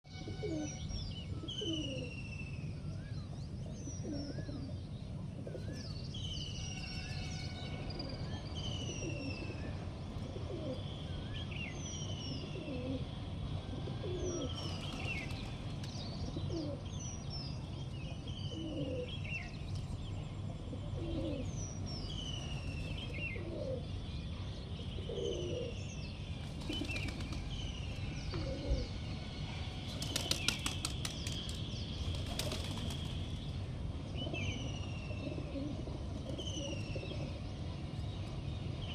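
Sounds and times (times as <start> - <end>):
pigeons cooing: 10.2 - 10.9, 12.5 - 13.2, 13.8 - 15.4, 16.4 - 16.8, 18.5 - 19.2, 20.8 - 21.5, 23.3 - 23.8, 28.3 - 28.9, 35.2 - 37.4
small birds chirping: 14.3 - 38.9
pigeon wings flapping: 26.5 - 27.6, 29.9 - 33.4.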